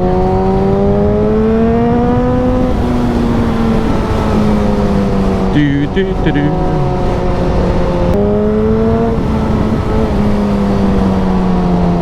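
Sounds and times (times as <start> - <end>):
motorcycle engine revving: 0.0 - 5.6.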